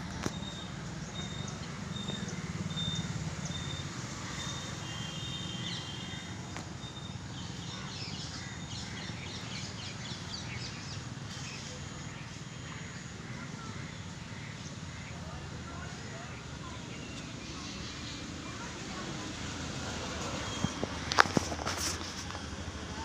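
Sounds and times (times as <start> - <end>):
bird chirps: 0.2 - 11.0.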